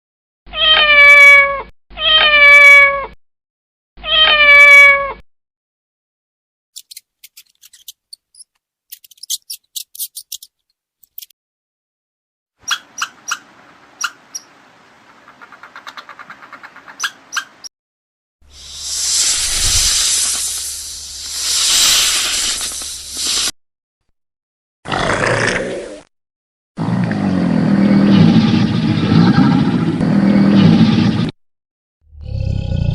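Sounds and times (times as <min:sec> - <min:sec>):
cat meowing: 0:00.5 - 0:03.2, 0:04.0 - 0:05.2.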